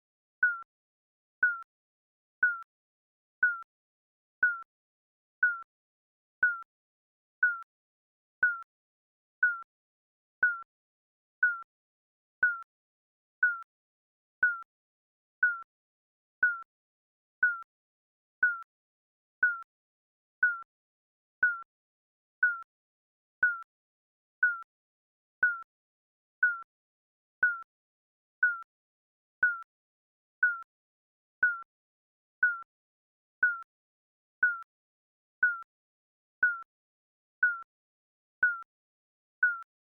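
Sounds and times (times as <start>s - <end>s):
digital timer beeping: 0.4s - 0.7s, 1.4s - 1.7s, 2.4s - 2.7s, 3.4s - 3.7s, 4.4s - 4.7s, 5.4s - 5.7s, 6.4s - 6.7s, 7.4s - 7.7s, 8.4s - 8.7s, 9.4s - 9.7s, 10.4s - 10.7s, 11.4s - 11.7s, 12.4s - 12.7s, 13.4s - 13.7s, 14.4s - 14.7s, 15.4s - 15.7s, 16.4s - 16.7s, 17.4s - 17.7s, 18.4s - 18.7s, 19.4s - 19.7s, 20.4s - 20.7s, 21.4s - 21.7s, 22.4s - 22.7s, 23.4s - 23.7s, 24.4s - 24.7s, 25.4s - 25.7s, 26.4s - 26.7s, 27.4s - 27.7s, 28.4s - 28.7s, 29.4s - 29.7s, 30.4s - 30.7s, 31.4s - 31.7s, 32.4s - 32.7s, 33.4s - 33.7s, 34.4s - 34.7s, 35.4s - 35.7s, 36.4s - 36.7s, 37.4s - 37.7s, 38.4s - 38.7s, 39.4s - 39.7s.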